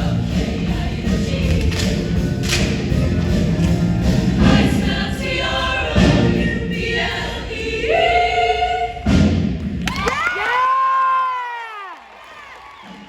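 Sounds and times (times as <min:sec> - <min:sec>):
choir singing to music: 0:00.0 - 0:09.6.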